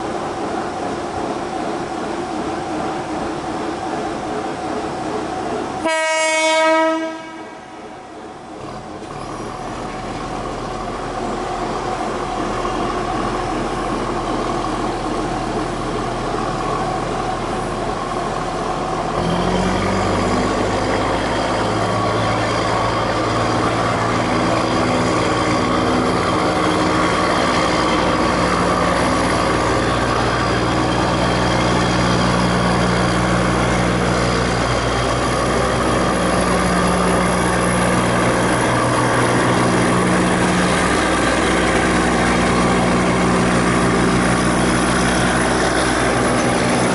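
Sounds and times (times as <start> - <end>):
diesel locomotive engine: 0.0 - 46.9
locomotive horn blast: 5.8 - 7.8.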